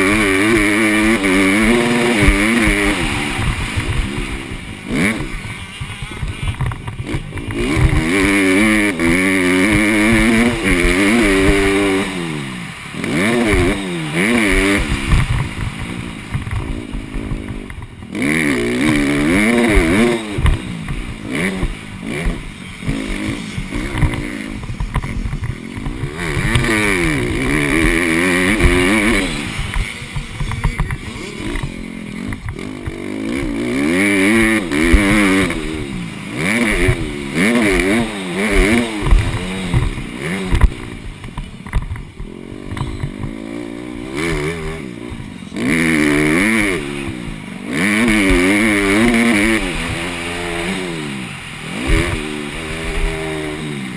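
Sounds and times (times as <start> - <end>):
dirt bike engine revving: 0.0 - 53.9
clatters and knocks: 38.6 - 43.5.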